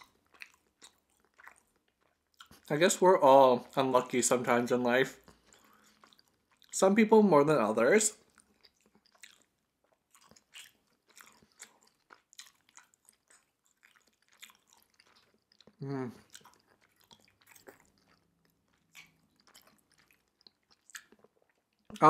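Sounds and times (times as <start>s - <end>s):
wet chewing mouth smacks: 0.0s - 2.7s, 5.1s - 6.8s, 8.2s - 22.0s
person humming: 15.8s - 16.2s.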